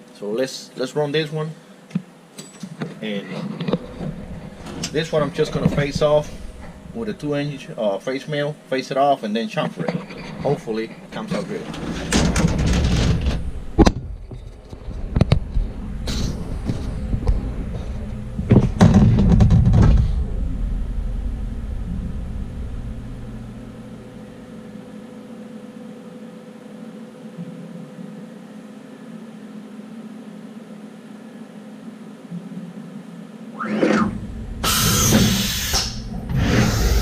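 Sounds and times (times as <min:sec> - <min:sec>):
faint steady whine: 0:00.0 - 0:37.0
machine hum: 0:01.4 - 0:09.0, 0:09.9 - 0:37.0
low rumble: 0:03.8 - 0:07.6, 0:11.6 - 0:24.8, 0:33.6 - 0:37.0
machine clicks and knocks: 0:11.1 - 0:15.5, 0:18.4 - 0:20.2
loud rushing noise: 0:33.6 - 0:37.0.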